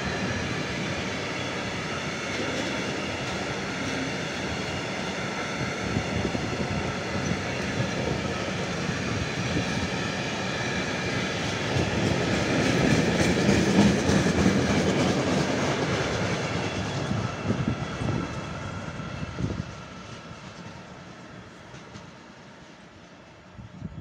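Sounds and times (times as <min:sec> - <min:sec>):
freight train wheels clattering: 0:00.0 - 0:18.6.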